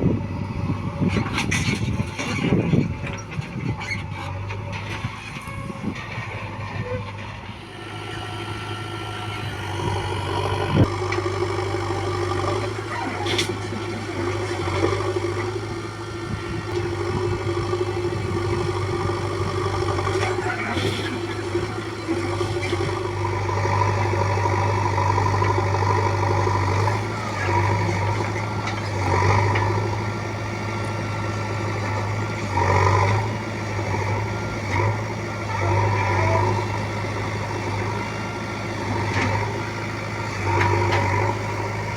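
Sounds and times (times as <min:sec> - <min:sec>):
diesel engine droning: 0:00.0 - 0:41.9.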